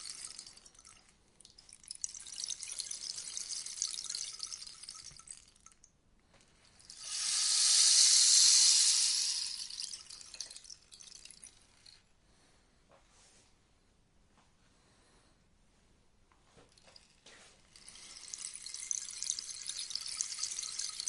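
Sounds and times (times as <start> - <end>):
rainstick pebbles pattering: 6.8 - 12.0, 16.8 - 21.0.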